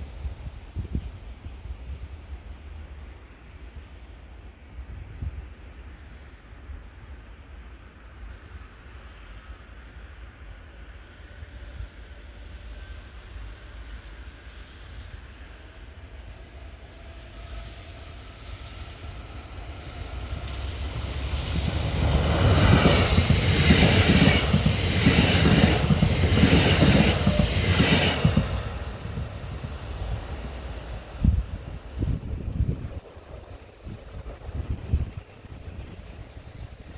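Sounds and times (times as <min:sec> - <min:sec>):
train wheels rumbling and clattering: 0:17.9 - 0:36.9.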